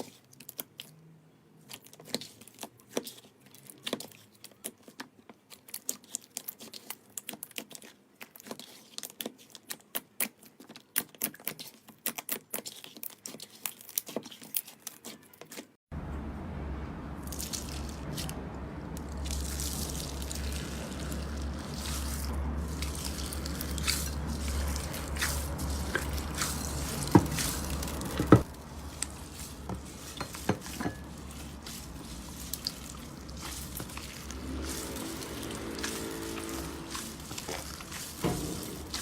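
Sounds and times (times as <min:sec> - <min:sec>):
slime squishing: 0:01.6 - 0:15.7, 0:17.2 - 0:39.0
low hum: 0:15.9 - 0:39.0.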